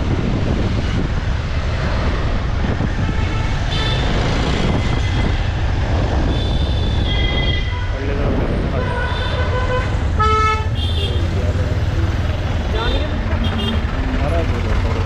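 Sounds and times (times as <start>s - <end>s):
wind on microphone: 0.0s - 10.2s.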